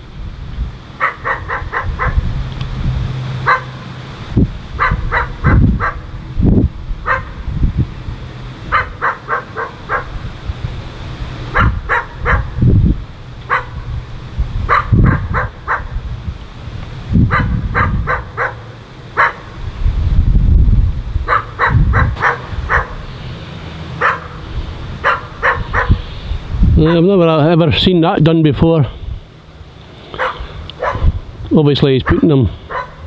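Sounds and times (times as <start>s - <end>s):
low rumbling: 0.0s - 33.0s
steady low engine hum: 0.0s - 33.0s
dog barking: 1.0s - 2.3s, 3.4s - 3.8s, 4.8s - 6.2s, 7.0s - 7.4s, 8.7s - 10.2s, 11.5s - 12.6s, 13.5s - 13.8s, 14.7s - 16.0s, 17.3s - 19.5s, 21.3s - 23.1s, 24.0s - 24.4s, 25.0s - 26.0s, 26.8s - 27.0s, 30.2s - 31.2s, 32.0s - 33.0s.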